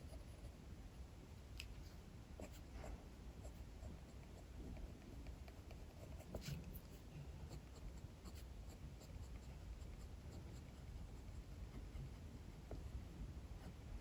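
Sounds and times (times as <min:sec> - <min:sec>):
pencil scratching on paper: 0:02.4 - 0:13.0.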